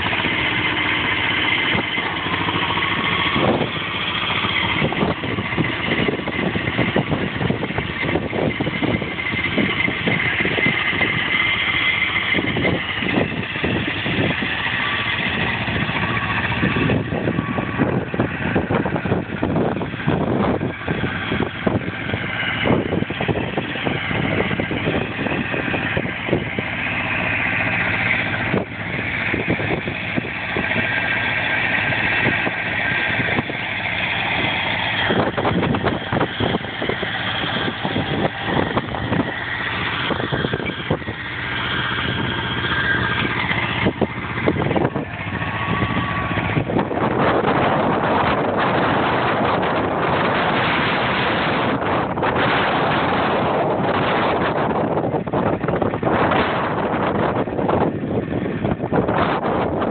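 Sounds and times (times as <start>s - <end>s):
tractor engine drone: 0.0s - 59.9s.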